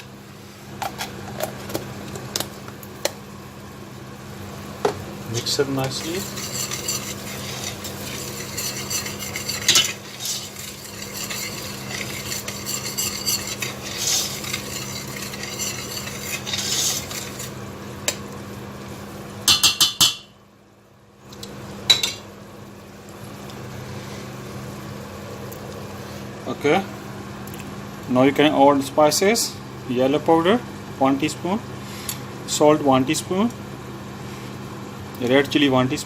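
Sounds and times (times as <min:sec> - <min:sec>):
food sizzling: 0:05.3 - 0:19.3
spoon stirring and scraping in pan: 0:05.4 - 0:18.2.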